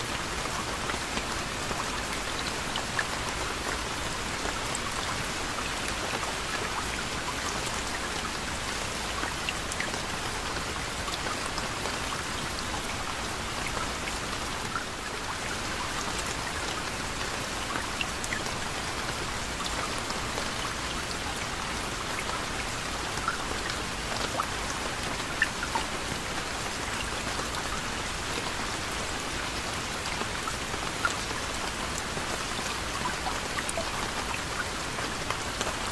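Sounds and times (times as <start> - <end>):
gentle rain falling: 0.0 - 35.9
raindrops ticking on surface: 0.0 - 35.9.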